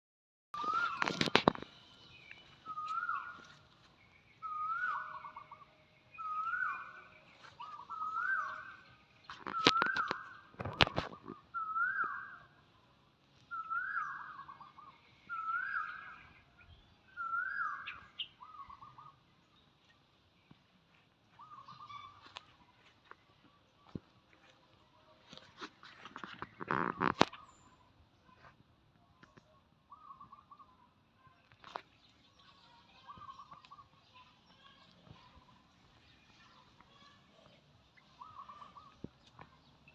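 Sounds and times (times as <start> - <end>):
bird whistled call: 0.6 - 1.3, 2.0 - 3.5, 4.4 - 10.4, 11.5 - 12.6, 13.5 - 16.4, 17.1 - 19.2, 21.4 - 22.2.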